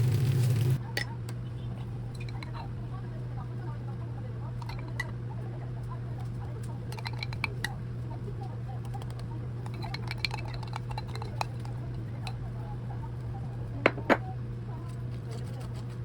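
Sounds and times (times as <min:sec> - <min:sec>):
steady low hum: 0:00.0 - 0:16.0
kitchenware clinking: 0:02.2 - 0:02.7, 0:04.6 - 0:05.2, 0:06.8 - 0:07.8, 0:08.8 - 0:12.4, 0:13.8 - 0:14.3.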